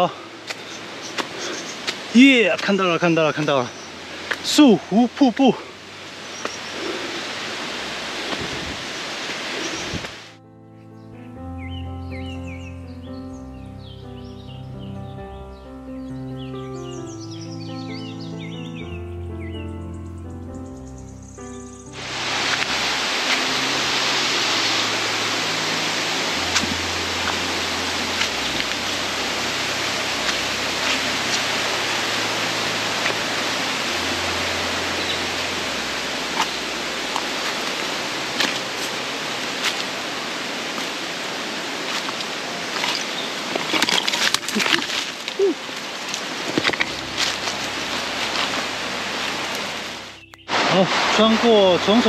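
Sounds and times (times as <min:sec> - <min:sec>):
waterfall rushing: 0:00.0 - 0:10.4, 0:21.9 - 0:52.0.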